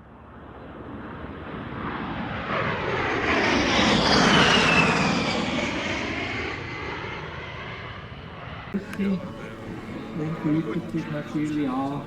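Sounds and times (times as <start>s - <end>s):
high turbine whine: 8.8s - 12.0s
model helicopter rotor and engine: 8.8s - 12.0s.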